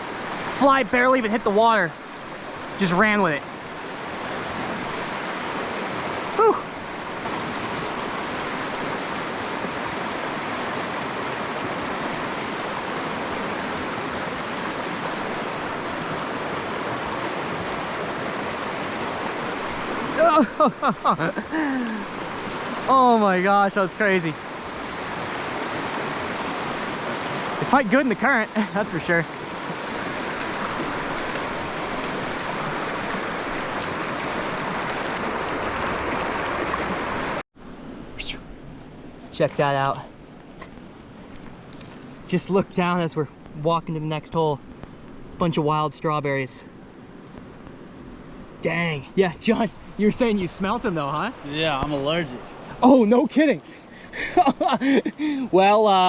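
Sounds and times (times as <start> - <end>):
creek water flowing: 0.0 - 56.0.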